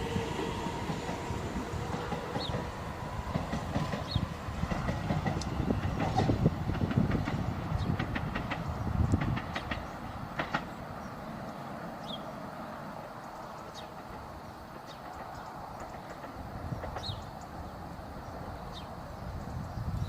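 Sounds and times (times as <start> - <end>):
electric train pulling away: 0.0 - 19.4
wheels clicking over rail joints: 1.9 - 11.6, 13.2 - 18.4.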